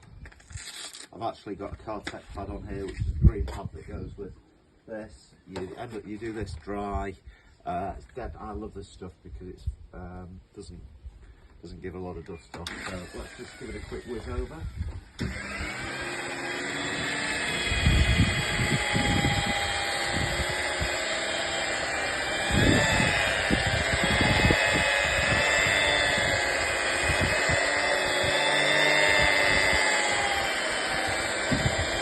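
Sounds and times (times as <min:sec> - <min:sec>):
car polisher motor whine: 0:12.7 - 0:32.0
polishing pad low rumbling: 0:15.3 - 0:32.0.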